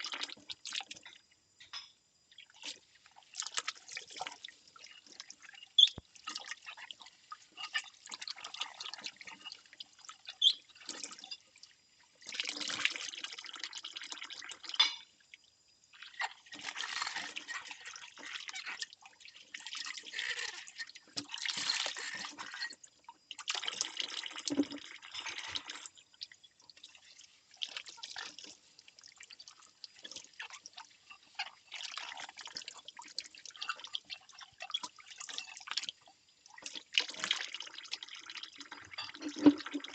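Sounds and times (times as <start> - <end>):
ceramic bowls clinking: 14.8 - 15.0.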